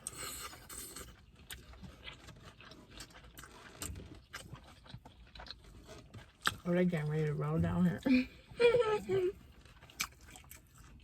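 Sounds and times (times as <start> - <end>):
chewing with wet mouth smacks: 0.0 - 6.7, 9.4 - 11.0.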